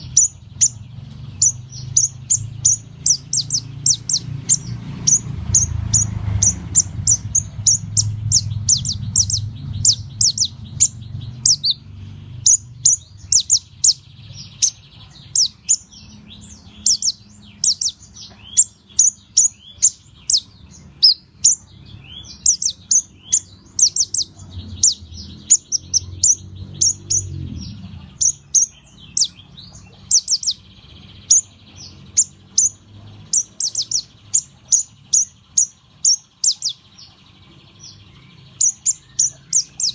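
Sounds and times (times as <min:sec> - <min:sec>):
low hum: 0:00.0 - 0:18.6
songbird chirping: 0:00.0 - 0:39.9.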